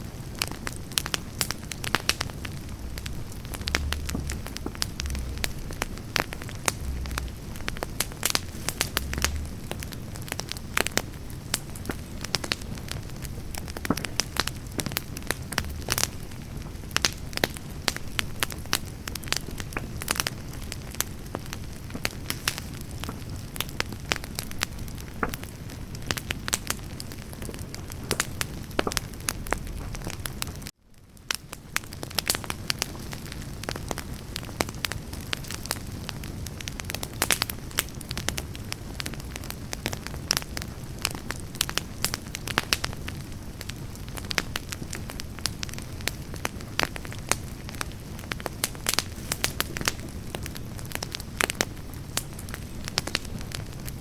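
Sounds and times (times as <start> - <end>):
campfire crackling and popping: 0.0 - 54.0
flame rushing: 0.3 - 30.7.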